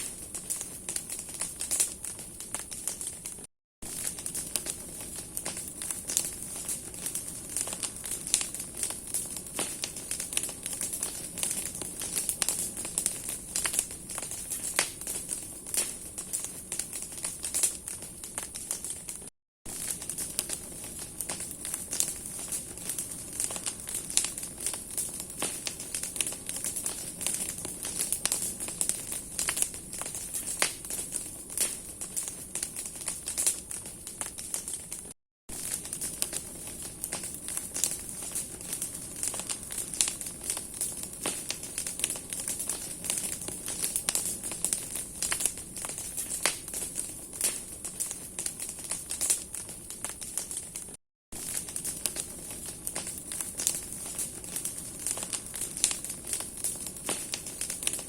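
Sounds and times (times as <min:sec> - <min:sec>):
wood crackling and popping: 0:00.0 - 0:58.0
hiss of flame: 0:51.4 - 0:58.0.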